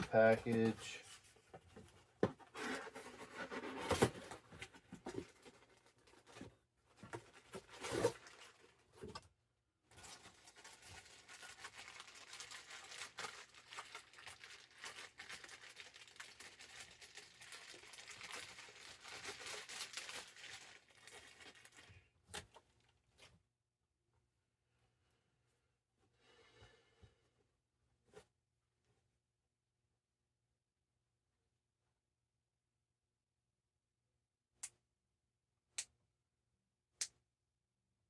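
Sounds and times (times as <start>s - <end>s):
packaging rustling and crinkling: 2.4s - 9.1s, 9.9s - 22.5s
packaging tearing: 10.0s - 21.9s.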